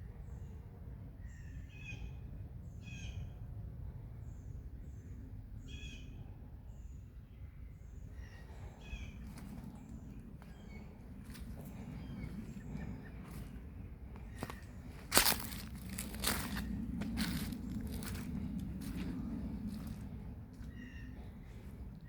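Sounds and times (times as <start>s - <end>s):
low steady rumble: 0.0s - 22.0s
wild birds calling: 8.0s - 22.0s.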